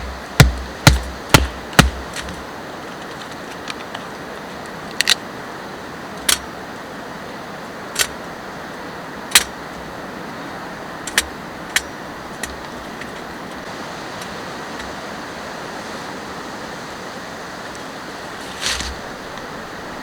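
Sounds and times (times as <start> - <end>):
rain hiss: 0.0 - 20.0
sharp clicks or light knocks: 11.1 - 13.7.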